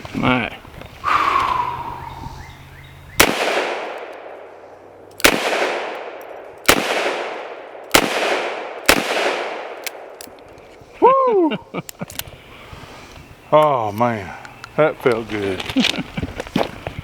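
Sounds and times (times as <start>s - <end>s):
revolver gunshots echoing: 3.2s - 4.5s, 5.2s - 10.2s.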